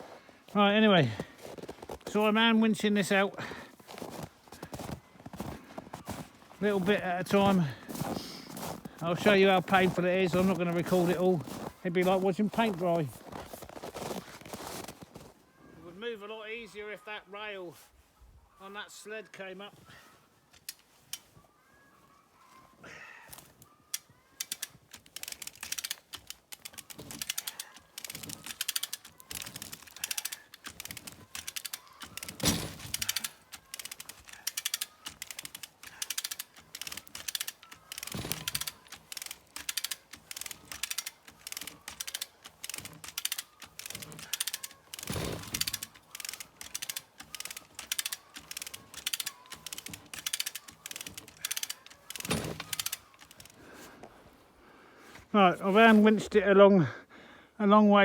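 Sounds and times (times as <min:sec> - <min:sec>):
hand winch ratcheting: 0:23.3 - 0:53.9.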